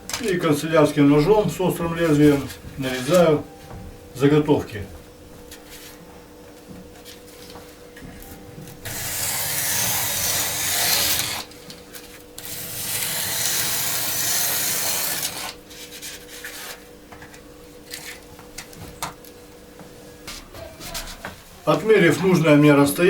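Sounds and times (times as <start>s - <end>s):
utility knife scraping through sheet: 8.9s - 11.5s, 12.4s - 16.8s.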